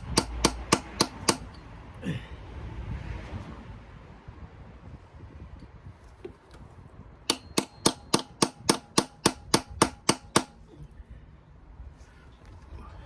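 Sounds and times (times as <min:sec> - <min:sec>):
hammer striking metal: 0:00.0 - 0:01.6, 0:07.3 - 0:10.6.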